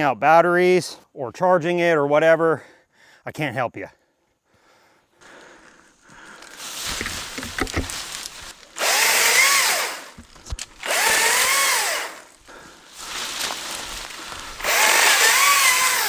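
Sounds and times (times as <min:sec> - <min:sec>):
chainsaw motor bursts: 0:06.4 - 0:16.0.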